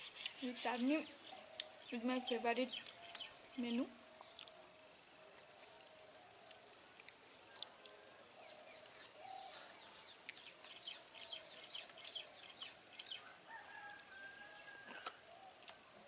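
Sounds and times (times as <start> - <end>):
faint bird calls: 7.5 - 15.9.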